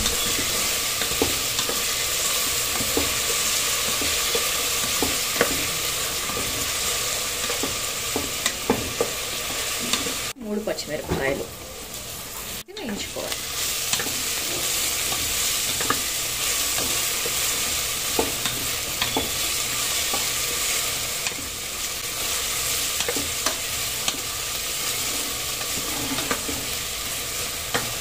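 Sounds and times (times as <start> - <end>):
food sizzling in oil: 0.0 - 28.0
wooden spatula scraping metal pot: 24.8 - 26.8.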